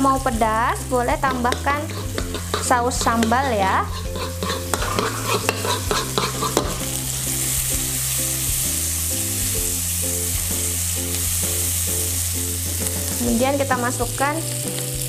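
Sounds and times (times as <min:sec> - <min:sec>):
onion sizzling in a wok: 0:00.0 - 0:15.0
spoon scraping ceramic bowl: 0:01.3 - 0:07.0.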